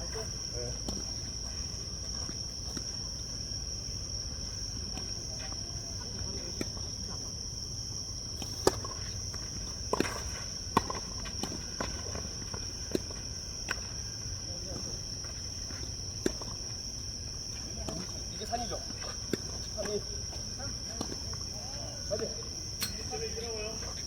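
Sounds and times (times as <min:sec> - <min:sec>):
insects chirring: 0:00.0 - 0:24.0
tennis ball strikes: 0:09.8 - 0:11.9.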